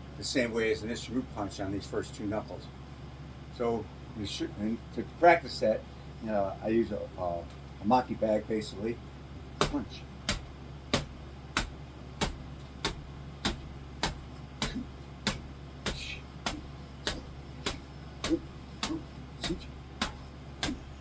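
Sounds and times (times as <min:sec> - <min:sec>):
fist punches on pebble bag: 0:09.6 - 0:21.0.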